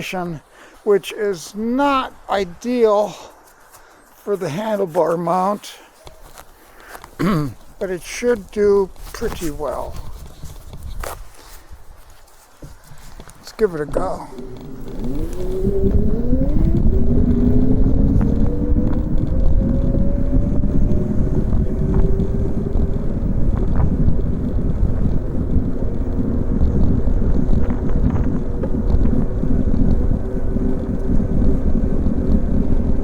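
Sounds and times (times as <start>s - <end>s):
wind rushing over microphone: 6.3s - 33.0s
bicycle hum rising in pitch: 14.2s - 33.0s.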